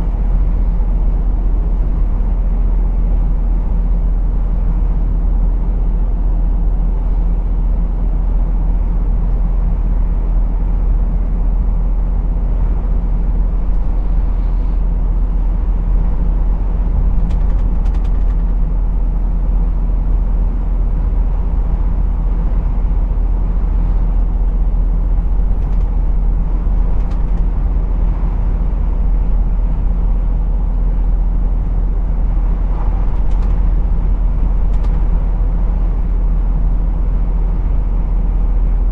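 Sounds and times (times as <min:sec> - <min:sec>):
lorry engine low drone: 0:00.0 - 0:38.9
road noise: 0:00.0 - 0:38.9
brief clicks: 0:34.7 - 0:35.0.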